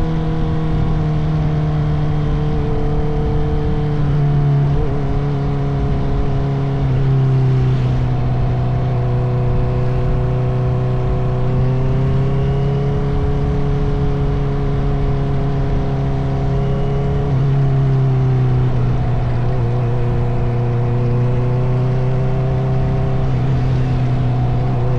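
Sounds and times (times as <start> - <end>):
motorcycle engine cruising: 0.0 - 24.9.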